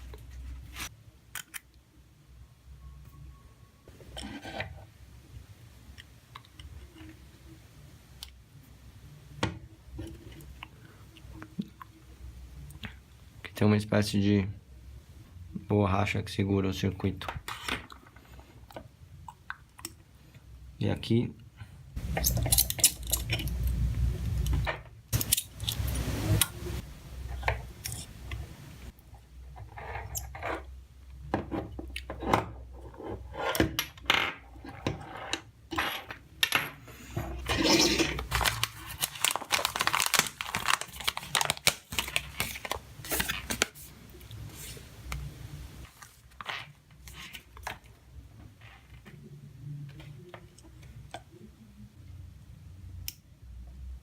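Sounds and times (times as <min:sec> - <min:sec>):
small tools and parts clicking: 0:22.0 - 0:23.8, 0:25.2 - 0:26.0.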